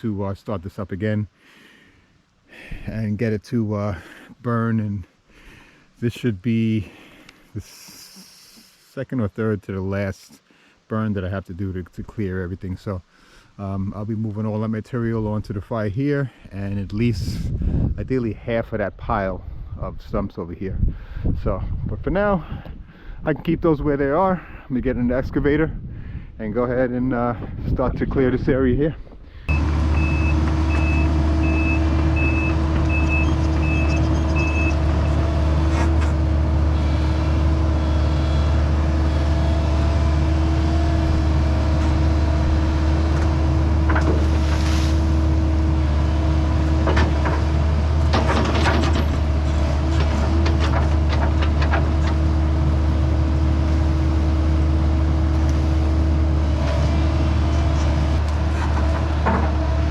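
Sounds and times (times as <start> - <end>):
travel alarm beeping: 29.5 - 35.2
excavator diesel engine running: 29.5 - 59.9.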